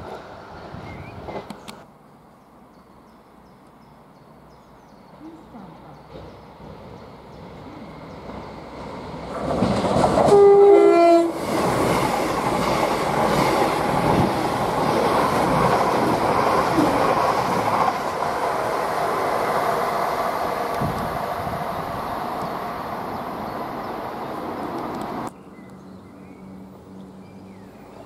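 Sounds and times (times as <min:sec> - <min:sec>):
train passing at speed: 0:00.0 - 0:28.0
two-tone train horn: 0:10.2 - 0:11.4.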